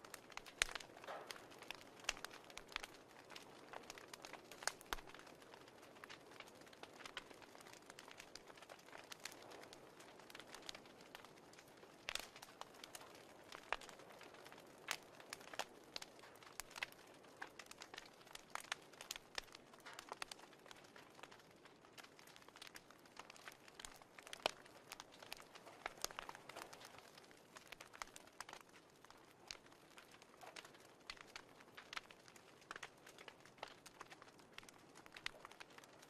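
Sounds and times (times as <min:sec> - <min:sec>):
fire crackling: 0:00.0 - 0:36.0.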